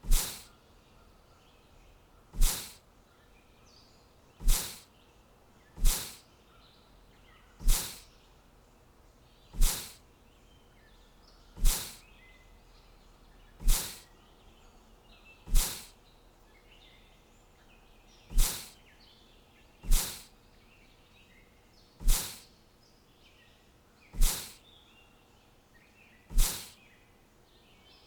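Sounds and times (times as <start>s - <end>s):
faint bird chirps: 0.0s - 28.0s.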